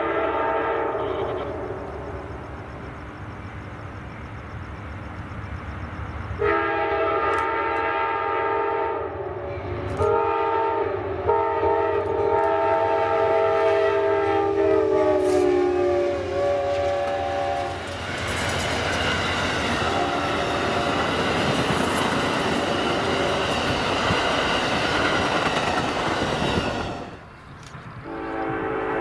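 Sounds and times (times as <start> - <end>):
locomotive air horn blasts: 0.0 - 1.7, 6.4 - 17.8, 19.8 - 20.9, 28.0 - 29.0
train rumble: 0.0 - 29.0.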